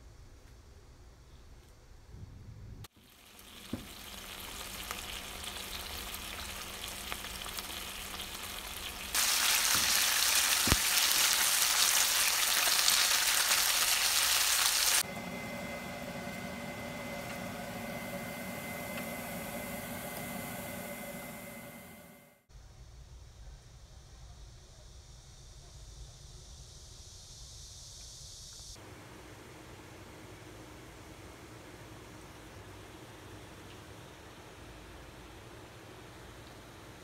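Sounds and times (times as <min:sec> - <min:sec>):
fish sizzling in a frying pan: 0:02.9 - 0:15.0.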